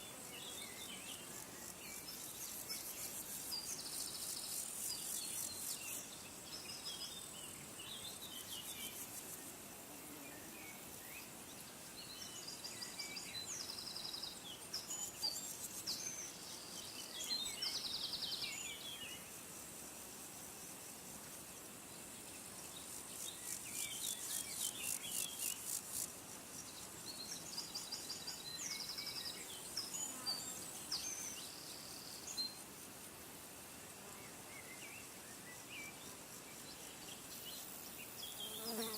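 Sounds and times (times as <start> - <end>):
faint outdoor hiss: 0.0 - 38.9
insect trills: 10.4 - 38.9.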